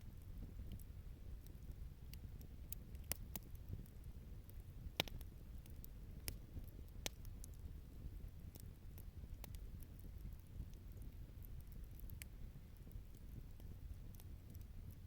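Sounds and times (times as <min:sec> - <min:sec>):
campfire crackling and popping: 0:00.0 - 0:15.0
low steady rumble: 0:00.0 - 0:15.0.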